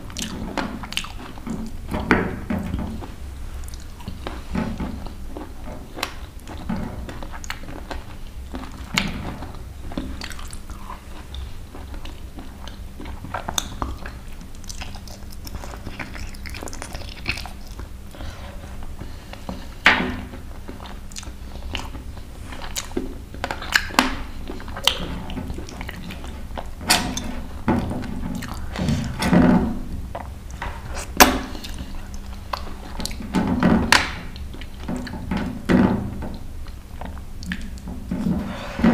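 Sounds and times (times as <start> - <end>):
chewing crunchy chicken: 0.0 - 1.9, 3.0 - 29.3.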